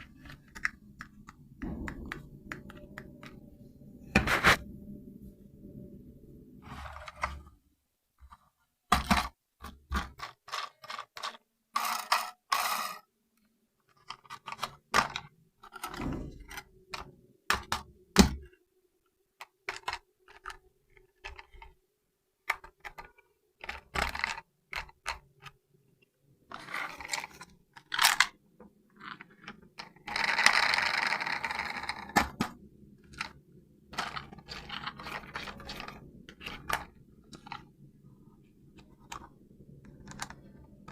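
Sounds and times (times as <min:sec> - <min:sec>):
toy clicks knocks and scrapes: 0:10.2 - 0:13.0, 0:29.4 - 0:32.2.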